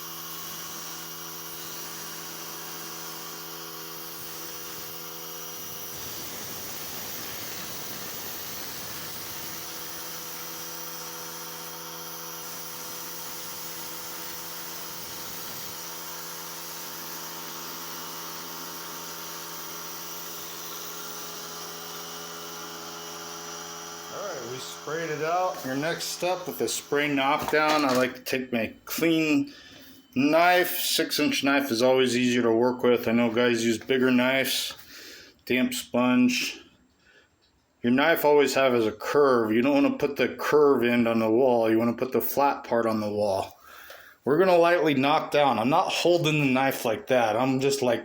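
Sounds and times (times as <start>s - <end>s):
air compressor motor hum: 0.0s - 28.3s
hopper gun spraying airy hiss: 24.3s - 28.0s.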